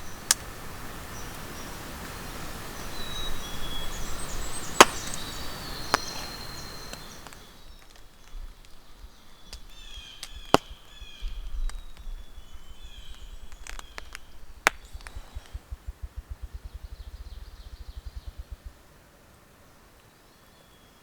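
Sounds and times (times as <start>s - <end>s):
forest birdsong: 0.0s - 21.0s
low rapid thumping: 13.2s - 18.8s.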